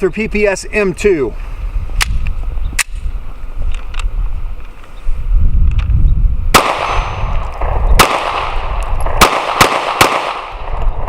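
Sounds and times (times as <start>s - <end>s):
pistol shots with echo: 6.5s - 7.3s, 8.0s - 10.8s.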